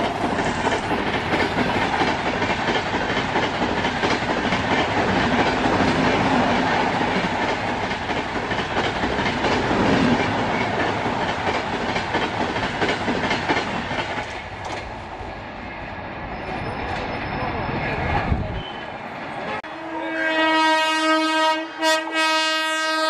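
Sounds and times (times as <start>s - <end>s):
train wheels clattering over joints: 0.0s - 15.0s.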